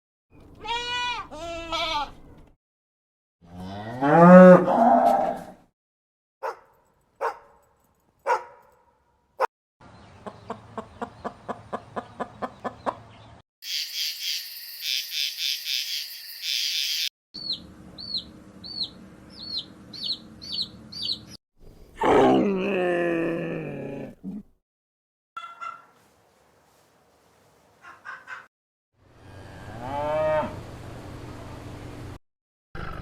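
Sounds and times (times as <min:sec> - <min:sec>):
high chirping: 0:13.6 - 0:21.4
sharp animal calls: 0:25.4 - 0:25.9.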